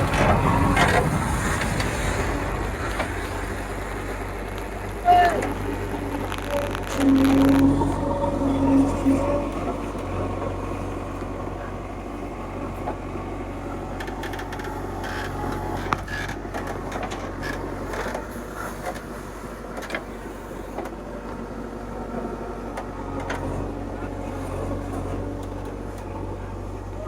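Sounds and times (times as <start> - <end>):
knocks and rattles: 0.0 - 10.4
heavy diesel machinery running: 0.0 - 27.0.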